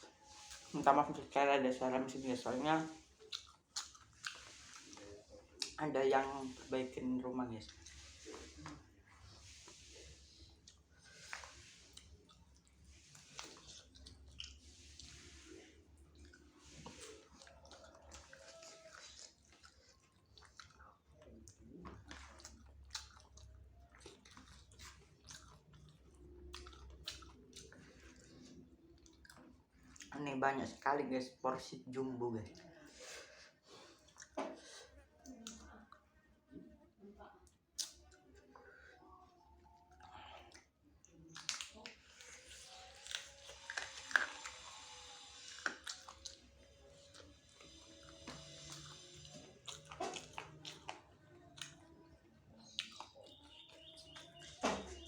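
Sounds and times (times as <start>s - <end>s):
person chewing chicken wings: 0.0s - 0.8s, 2.8s - 6.7s, 7.5s - 30.2s, 32.6s - 36.1s, 37.4s - 55.0s
mouth and teeth clicks: 3.2s - 4.5s, 37.8s - 38.2s.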